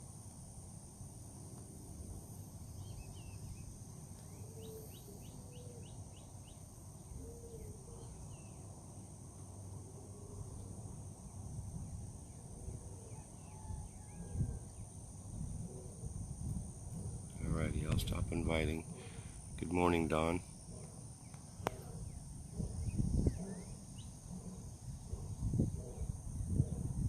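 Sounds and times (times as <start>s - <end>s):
high insect buzz: 0.0s - 27.0s
bird chirps: 2.8s - 8.6s.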